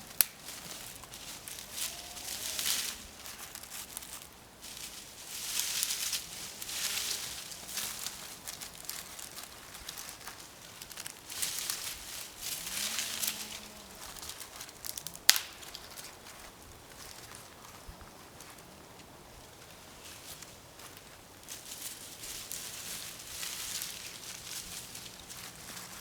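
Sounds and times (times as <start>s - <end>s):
kindling rustling and crinkling: 0.0s - 26.0s
sharp crack: 0.2s - 0.6s, 14.8s - 15.8s.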